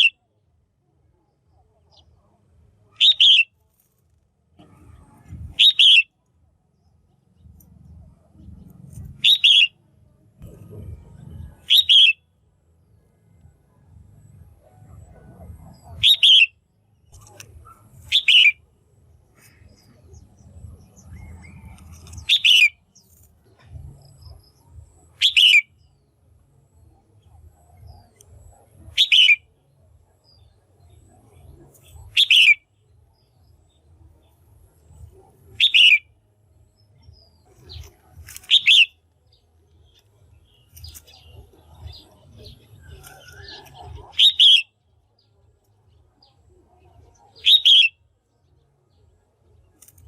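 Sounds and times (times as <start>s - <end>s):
bulbul calling: 0.0s - 0.2s, 2.9s - 3.6s, 4.6s - 6.3s, 7.4s - 9.8s, 10.4s - 12.3s, 14.6s - 18.7s, 19.3s - 26.0s, 26.9s - 29.7s, 30.3s - 45.3s, 46.8s - 48.0s
faint low hum: 0.0s - 50.0s.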